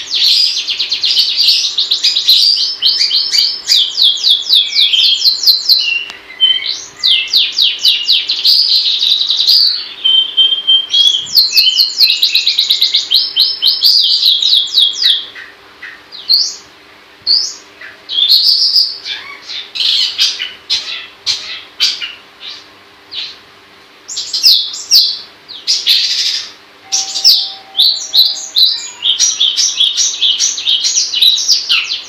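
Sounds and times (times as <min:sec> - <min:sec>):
shrike singing: 0:00.0 - 0:16.7, 0:24.1 - 0:32.0
faint steady hum: 0:00.0 - 0:32.0.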